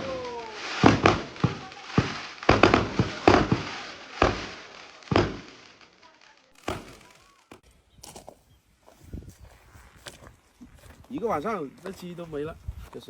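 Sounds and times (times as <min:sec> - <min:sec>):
fireworks bangs: 0:00.0 - 0:07.6.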